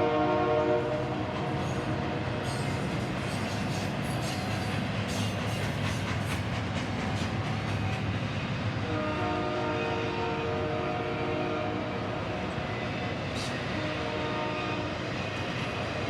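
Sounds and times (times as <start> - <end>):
train horn chord: 0.0 - 1.2, 8.8 - 12.0, 13.7 - 15.0
train cars rumbling and clattering: 0.0 - 16.0.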